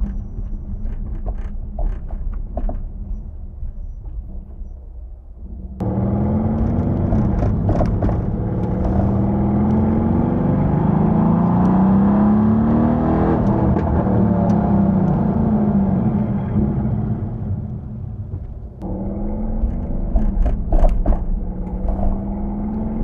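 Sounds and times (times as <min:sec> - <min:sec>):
car engine revving: 0:05.8 - 0:18.2, 0:18.8 - 0:23.0.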